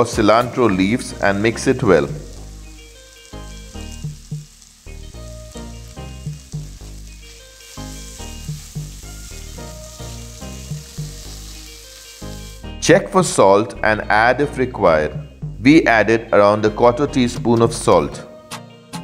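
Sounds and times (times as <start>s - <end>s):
gentle instrumental music: 0.0s - 19.0s
food sizzling in a pan: 0.4s - 12.8s.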